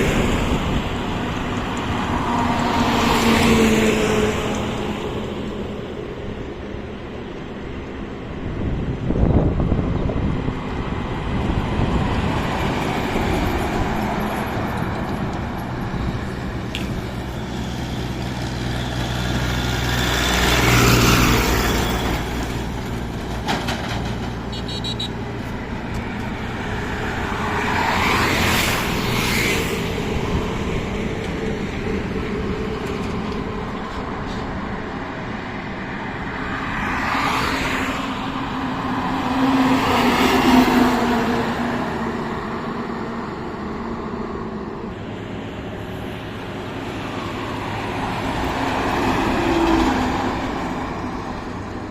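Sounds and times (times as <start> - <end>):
road noise: 0.0 - 51.9
vehicles rushing past: 0.0 - 51.9.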